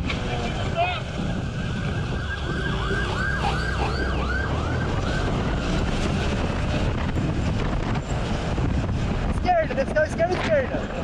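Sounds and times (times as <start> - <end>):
wind and road noise rumble: 0.0 - 11.0
police siren yelping: 1.0 - 5.9.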